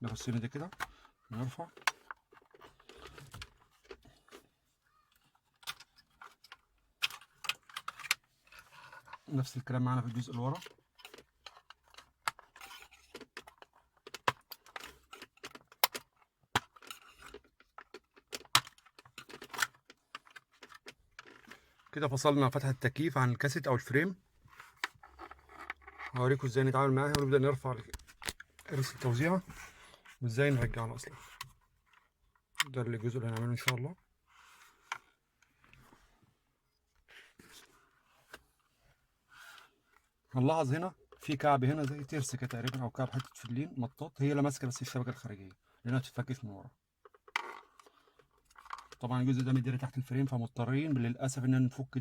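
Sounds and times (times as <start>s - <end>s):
plastic vent clicks and rustles: 10.0s - 21.7s.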